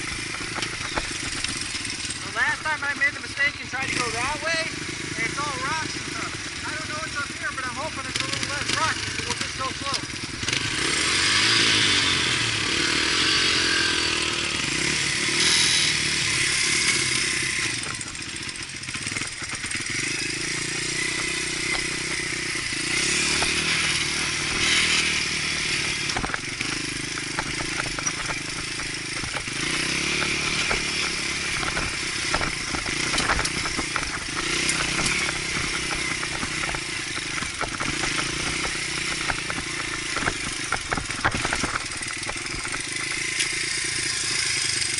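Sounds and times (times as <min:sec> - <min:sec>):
dirt bike engine revving: 0:00.0 - 0:44.9
bike clattering over rocky ground: 0:25.9 - 0:43.6.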